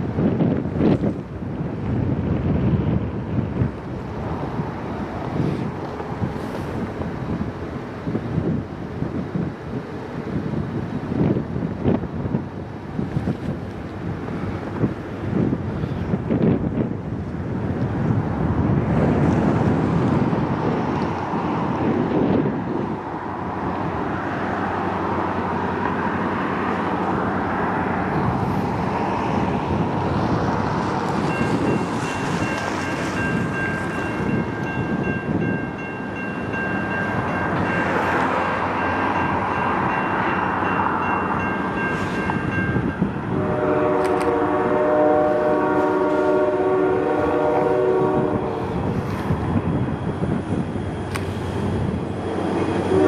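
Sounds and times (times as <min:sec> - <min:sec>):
freight train rumbling: 0:00.0 - 0:53.0
locomotive air horn chord: 0:43.2 - 0:48.8.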